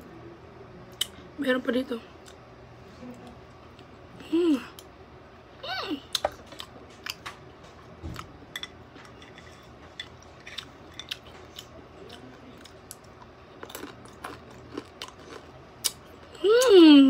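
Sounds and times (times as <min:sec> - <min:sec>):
chewing with mouth clicks: 0:10.0 - 0:16.7.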